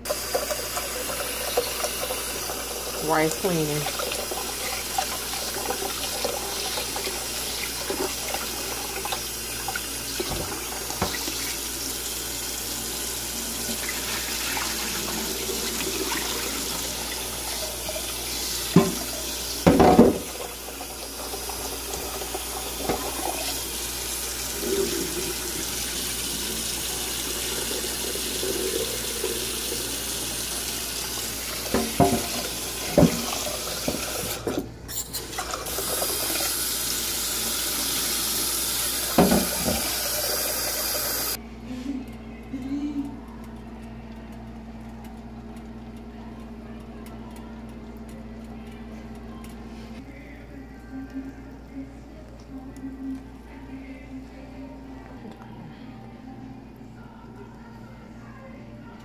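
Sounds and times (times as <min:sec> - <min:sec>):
tap water running into sink: 0:00.0 - 0:41.4.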